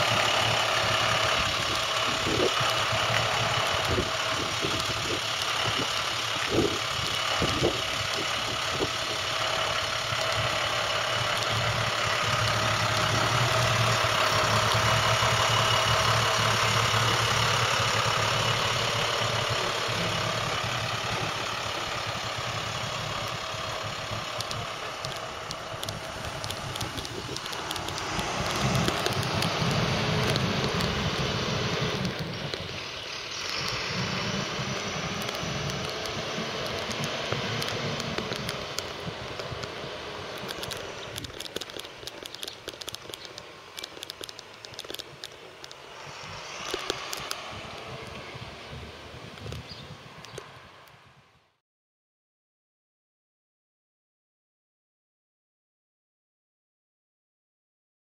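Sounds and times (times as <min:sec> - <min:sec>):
truck diesel engine running: 0:00.0 - 0:51.2.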